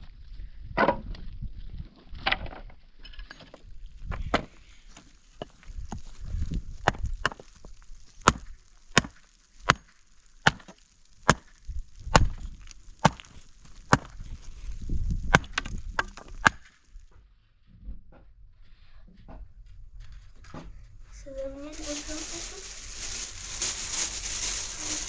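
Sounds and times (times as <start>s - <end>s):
axe chopping wood: 6.8s - 7.4s, 8.2s - 14.2s, 15.2s - 16.7s.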